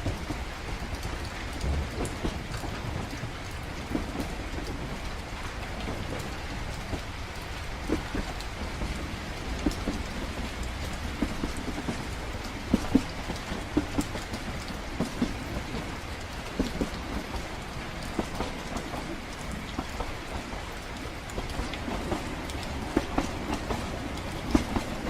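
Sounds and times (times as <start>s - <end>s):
rain pattering: 0.0s - 25.0s
train rumbling: 0.0s - 25.0s
light knocks and ticks: 5.8s - 25.0s.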